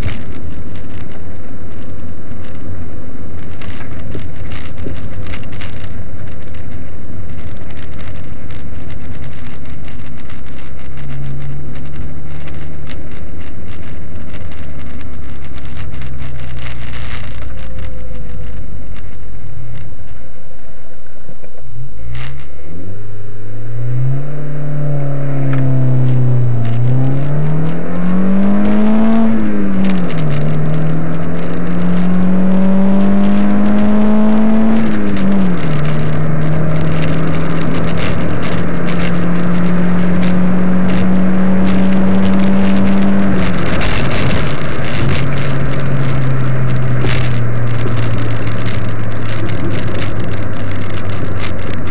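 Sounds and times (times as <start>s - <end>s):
car engine revving under acceleration: 0.0s - 19.8s, 22.0s - 51.9s.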